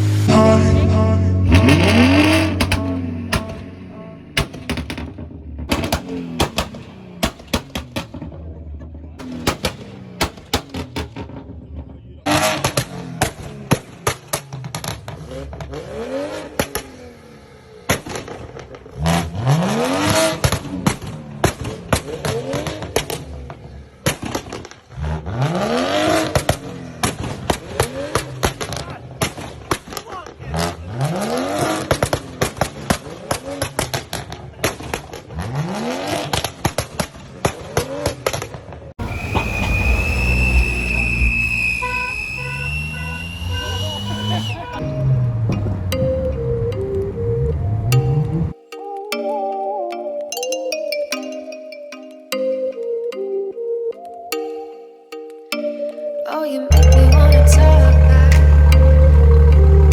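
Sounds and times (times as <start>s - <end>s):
car engine revving: 0.0s - 29.8s, 30.4s - 36.8s, 39.0s - 48.5s, 56.7s - 59.9s
exhaust pops and bangs: 1.5s - 3.7s, 4.4s - 15.9s, 20.0s - 24.9s, 26.2s - 30.1s, 31.6s - 35.5s
high steady whine: 56.7s - 59.9s.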